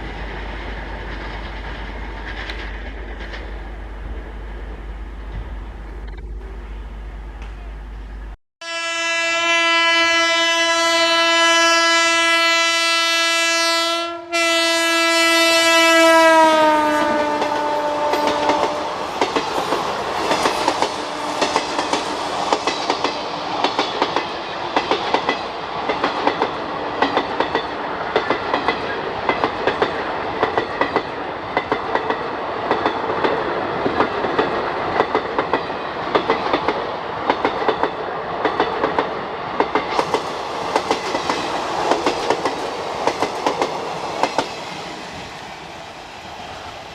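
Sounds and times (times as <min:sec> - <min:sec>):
train wheels clattering over rail joints: 0:00.2 - 0:03.6, 0:17.2 - 0:45.0
train horn blasts: 0:08.6 - 0:19.1, 0:20.6 - 0:22.4.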